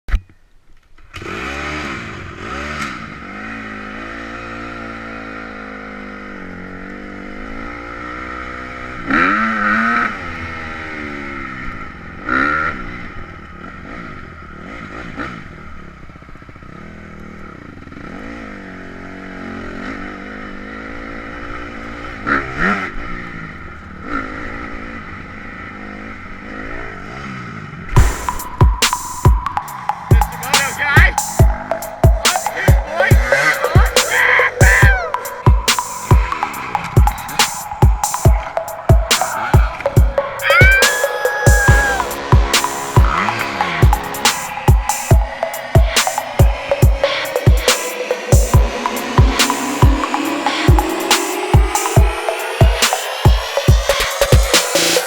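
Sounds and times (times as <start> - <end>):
motorbike engine revving: 1.1 - 23.2, 34.1 - 47.2.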